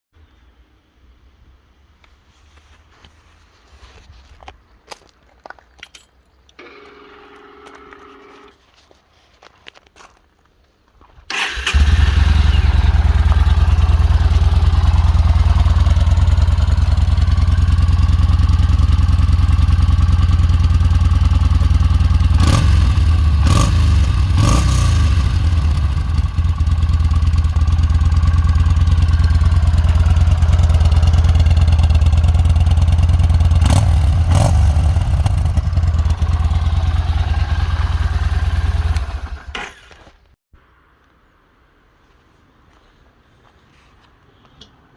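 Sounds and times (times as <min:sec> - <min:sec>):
engine revving bursts: 0:11.3 - 0:16.9, 0:19.8 - 0:26.9, 0:32.4 - 0:39.6
motorcycle engine running: 0:11.6 - 0:39.5.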